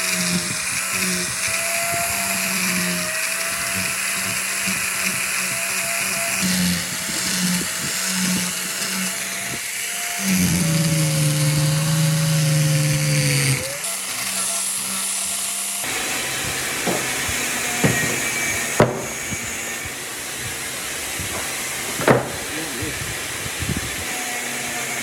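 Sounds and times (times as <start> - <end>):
electric power tool whining: 0.0 - 25.0
sharp knocks: 16.8 - 19.6, 21.3 - 22.5.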